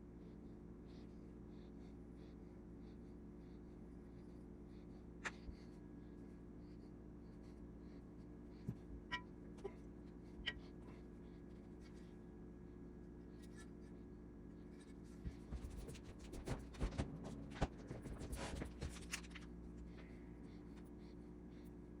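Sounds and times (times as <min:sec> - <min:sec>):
low hum: 0:16.2 - 0:22.0.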